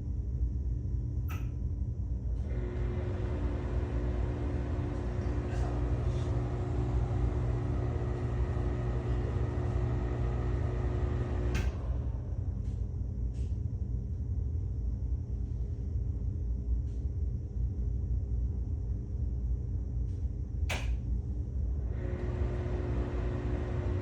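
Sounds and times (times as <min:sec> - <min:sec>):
exhaust fan humming and rattling: 0:00.0 - 0:24.0
fan switch click: 0:20.7 - 0:21.0.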